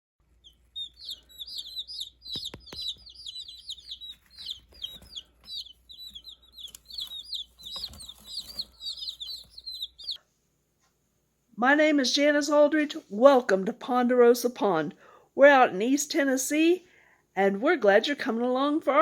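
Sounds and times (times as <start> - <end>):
chicks peeping: 0.2 - 10.2
sharp taps: 2.2 - 3.6.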